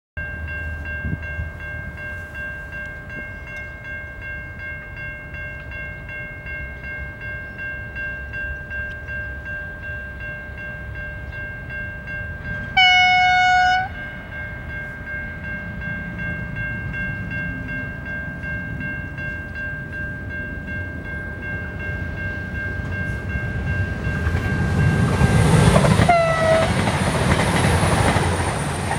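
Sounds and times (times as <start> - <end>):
train rumbling past: 0.2 - 28.9
train horn blast: 12.6 - 14.0, 26.0 - 26.9.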